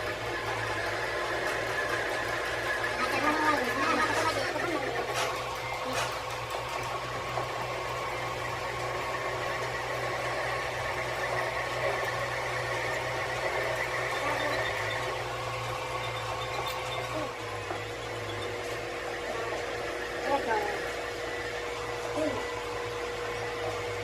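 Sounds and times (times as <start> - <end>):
machine humming: 0.0 - 24.0.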